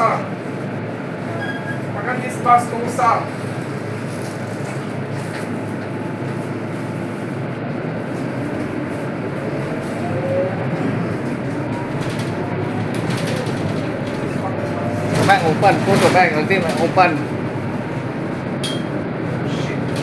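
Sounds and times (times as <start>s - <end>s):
bus diesel engine running: 0.0s - 20.0s
road noise: 0.0s - 20.0s.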